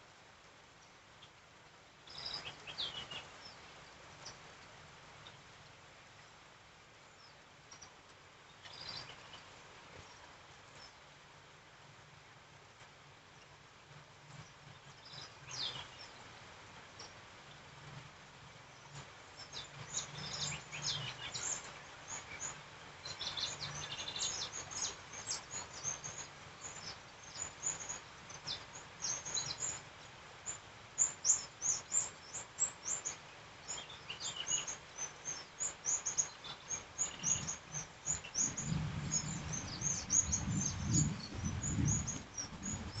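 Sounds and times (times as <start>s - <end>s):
steady rain: 0.0s - 43.0s
low rumble: 38.6s - 43.0s.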